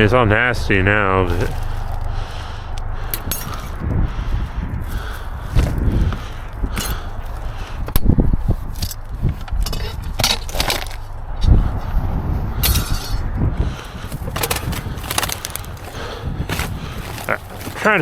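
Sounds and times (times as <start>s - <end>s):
debris clunking and scraping: 13.6s - 18.0s.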